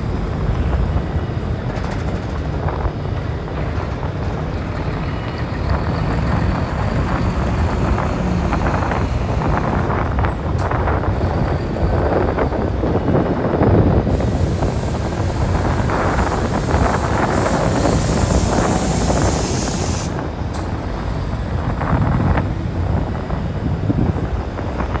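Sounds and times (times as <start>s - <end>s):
heavy vehicle engines rumbling: 0.0s - 25.0s
wind on microphone: 3.8s - 25.0s
high hiss: 6.2s - 10.0s, 14.1s - 22.5s.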